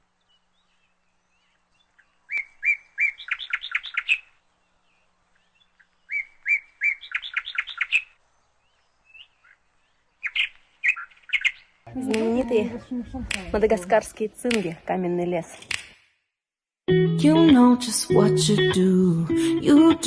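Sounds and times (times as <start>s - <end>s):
bird singing: 0.1s - 13.7s.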